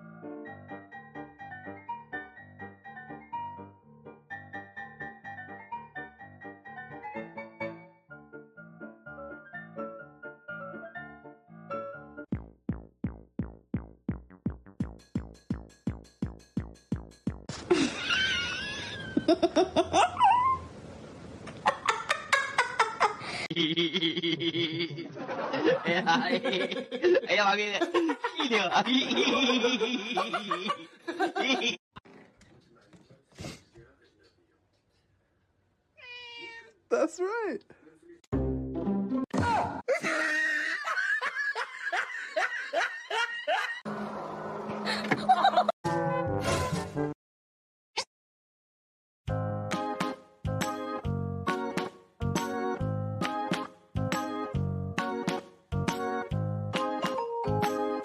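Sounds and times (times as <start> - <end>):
person laughing: 17.6 - 20.6, 21.6 - 31.8, 39.9 - 43.8, 44.9 - 45.7.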